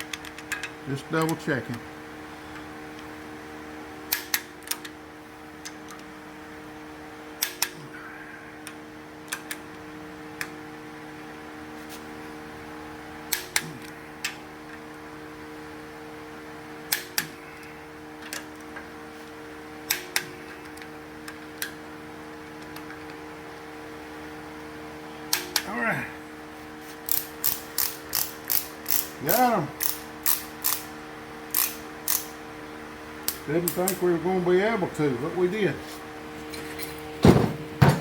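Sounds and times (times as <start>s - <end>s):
electrical hum: 0.0s - 38.0s.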